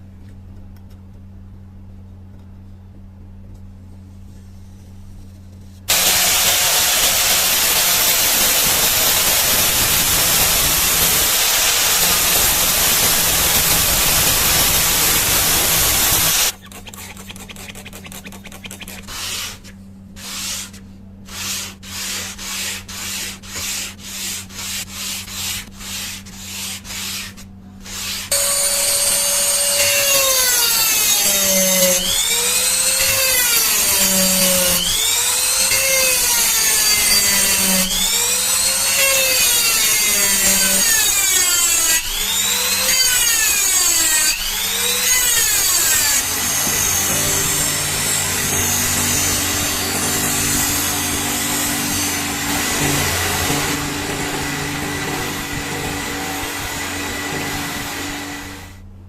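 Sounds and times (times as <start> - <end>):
power sander grinding: 5.9 - 16.6, 27.9 - 58.8
hand sanding rubbing strokes: 5.9 - 35.5.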